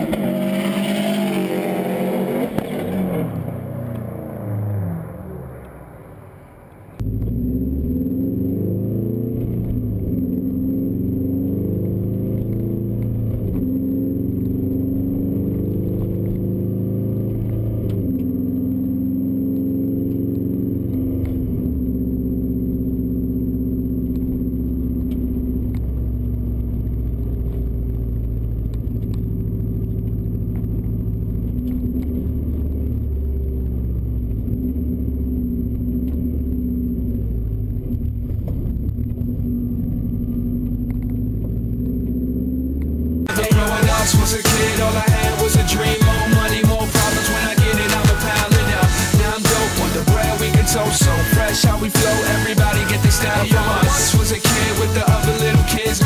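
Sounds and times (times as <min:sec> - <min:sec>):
car engine droning: 0:00.0 - 0:56.0.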